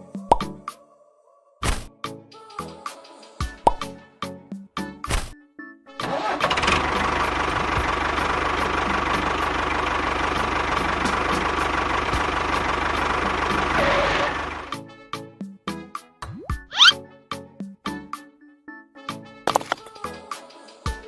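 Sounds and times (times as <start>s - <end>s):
engine idling with low chugging: 6.2s - 14.8s.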